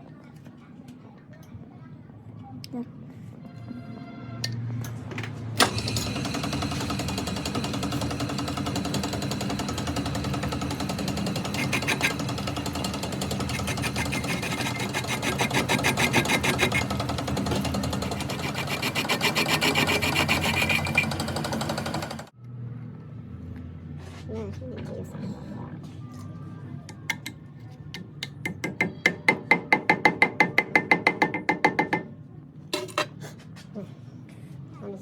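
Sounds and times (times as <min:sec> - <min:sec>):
power tool rattling: 0:05.6 - 0:22.3
steady machine hum: 0:05.6 - 0:22.3.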